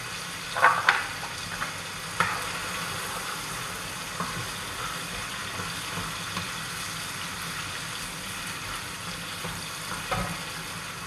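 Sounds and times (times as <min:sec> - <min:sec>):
tomatoes sizzling in frying pan: 0:00.0 - 0:11.0.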